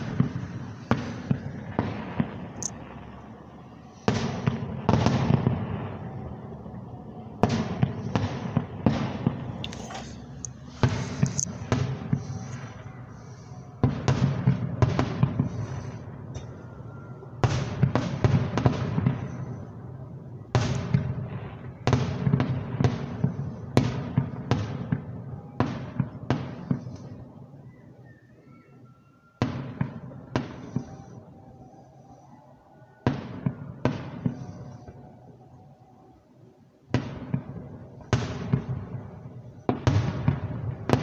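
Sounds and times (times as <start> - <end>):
fireworks bursting: 0.0 - 28.1, 29.3 - 35.6, 36.8 - 41.0.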